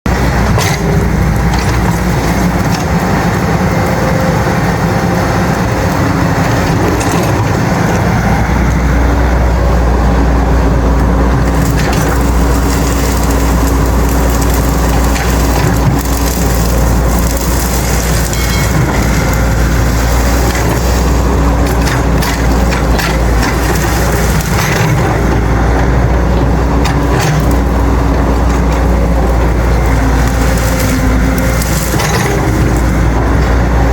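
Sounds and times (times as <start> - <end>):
excavator diesel engine running: 0.0 - 33.9
dry branches cracking and snapping: 11.4 - 33.9.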